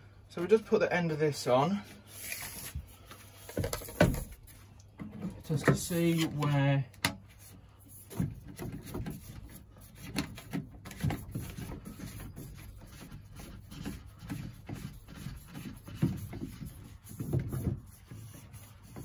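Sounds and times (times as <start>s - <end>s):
pipework knocks and scrapes: 7.9s - 19.0s.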